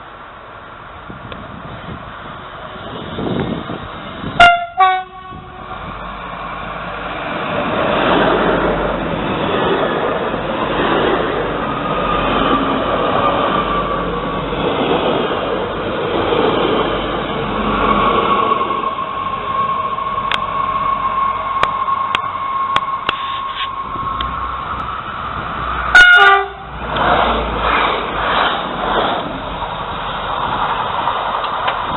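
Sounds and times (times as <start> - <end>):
train rolling noise: 0.0 - 31.9
train two-tone horn: 4.4 - 5.8, 25.9 - 26.8.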